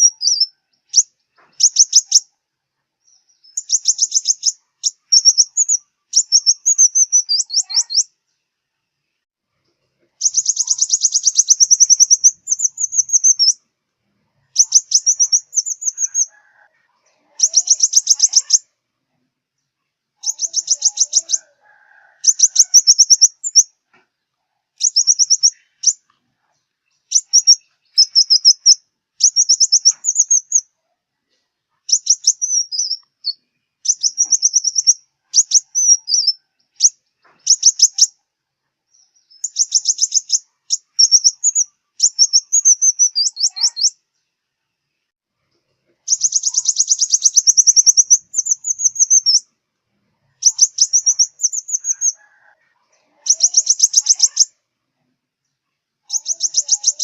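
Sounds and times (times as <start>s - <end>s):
sunbird high thin chirps: 0.0s - 2.3s, 3.0s - 8.1s, 10.2s - 13.6s, 14.6s - 16.3s, 17.4s - 18.7s, 20.2s - 21.5s, 22.2s - 23.7s, 24.8s - 26.1s, 27.1s - 30.7s, 31.9s - 38.1s, 38.9s - 44.0s, 46.1s - 49.5s, 50.4s - 52.2s, 53.2s - 54.6s, 56.0s - 57.0s.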